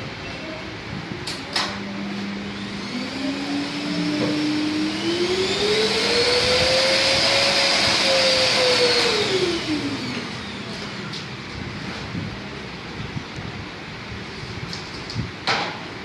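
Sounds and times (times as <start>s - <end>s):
vacuum cleaner motor whine: 1.7s - 12.0s.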